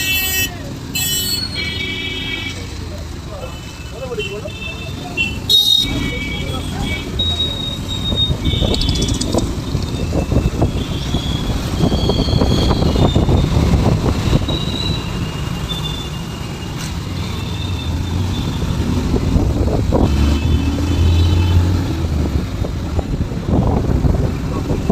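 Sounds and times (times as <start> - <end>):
traffic noise: 0.0 - 24.9
motorcycle engine rumble: 2.6 - 20.0.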